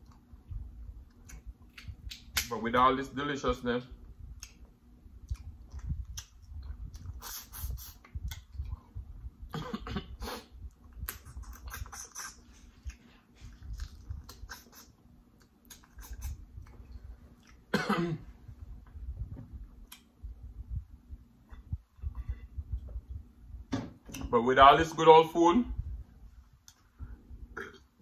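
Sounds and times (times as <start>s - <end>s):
person chewing: 5.2s - 8.9s, 10.9s - 17.7s.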